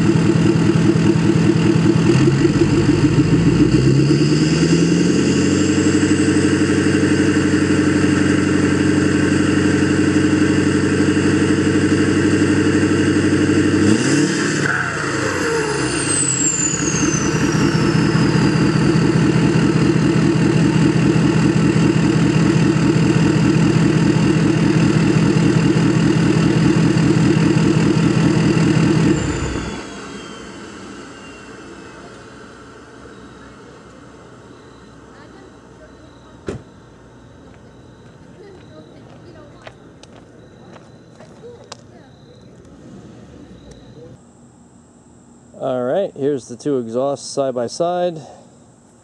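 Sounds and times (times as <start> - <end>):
diesel engine running: 0.0 - 44.2
high falling whistle: 13.8 - 21.0, 26.8 - 35.2.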